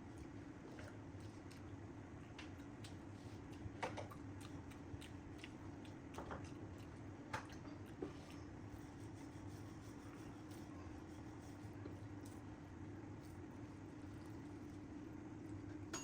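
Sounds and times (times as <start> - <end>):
steady low hum: 0.0 - 16.0
wet squishy chewing: 2.6 - 8.8.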